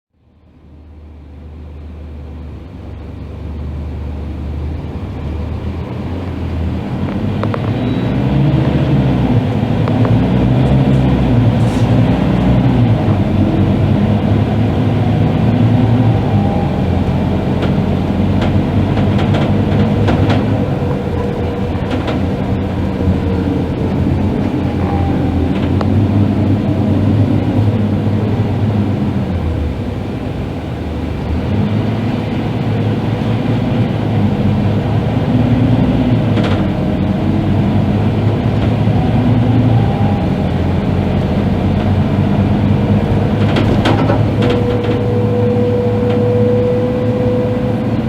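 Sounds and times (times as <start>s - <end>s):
bus diesel engine running: 0.1s - 48.0s.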